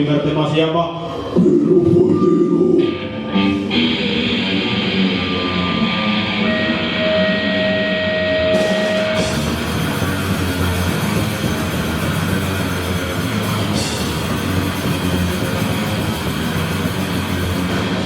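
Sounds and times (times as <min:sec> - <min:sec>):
distorted electric guitars: 0:01.0 - 0:18.0
drums and cymbals: 0:08.5 - 0:18.0.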